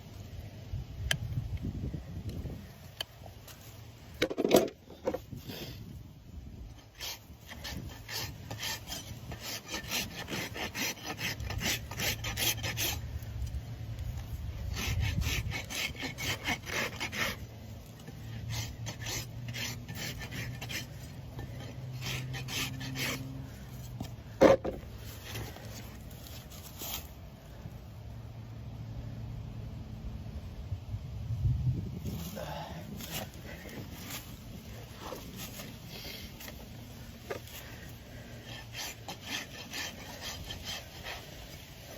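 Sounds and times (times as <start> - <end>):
rasp filing hoof: 6.7 - 13.6, 14.6 - 27.1, 33.0 - 41.9.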